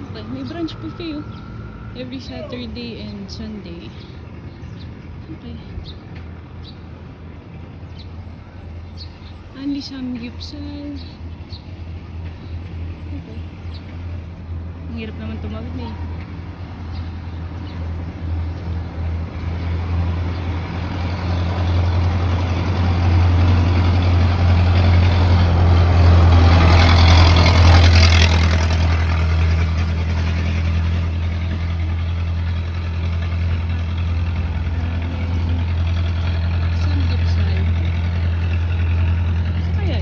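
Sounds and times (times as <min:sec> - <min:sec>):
highway traffic hum: 0:00.0 - 0:40.0
vehicle passing close: 0:10.3 - 0:40.0.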